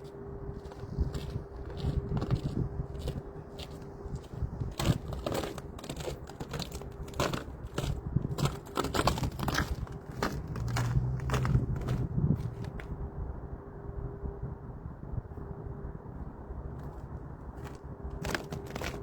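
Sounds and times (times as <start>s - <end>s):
footsteps crunching on frozen ground: 0.0s - 12.9s, 17.6s - 19.0s.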